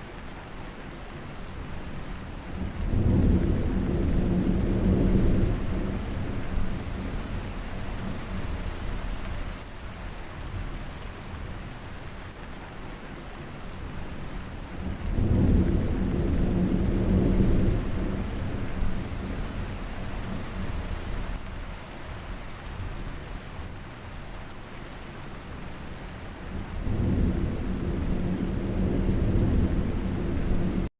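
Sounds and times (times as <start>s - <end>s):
steady rain: 0.0s - 30.9s
low rolling thunder: 2.6s - 9.5s, 14.8s - 21.4s, 26.5s - 30.9s.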